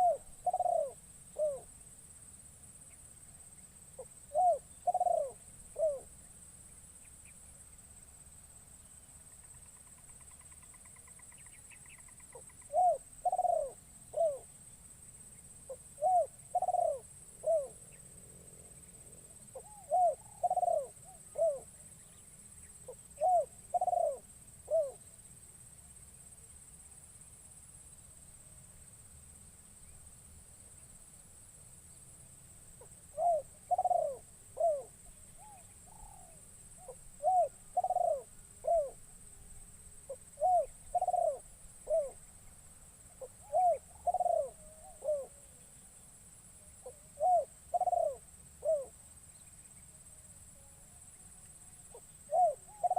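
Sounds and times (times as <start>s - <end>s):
dove cooing: 0.0s - 1.7s, 4.0s - 6.1s, 12.3s - 14.5s, 15.7s - 17.8s, 19.5s - 21.8s, 22.9s - 25.0s, 32.8s - 39.0s, 40.1s - 42.2s, 43.2s - 45.6s, 46.8s - 48.9s, 51.9s - 52.9s.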